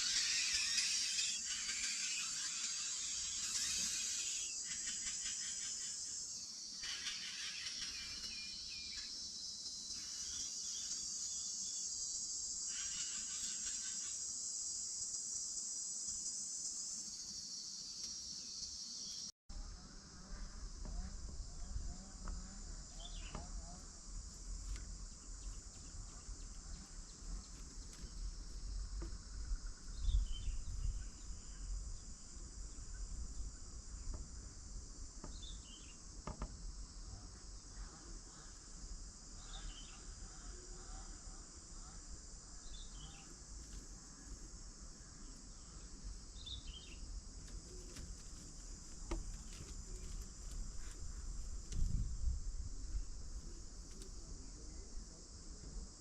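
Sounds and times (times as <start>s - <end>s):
bird chirping: 0.0s - 11.9s
high-pitched insect chorus: 0.0s - 56.0s.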